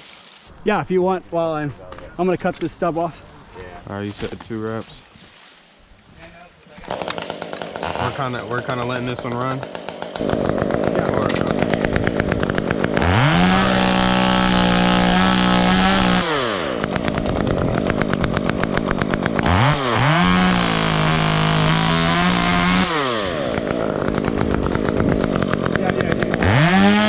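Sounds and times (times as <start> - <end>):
chainsaw revving and idling: 6.7 - 27.0.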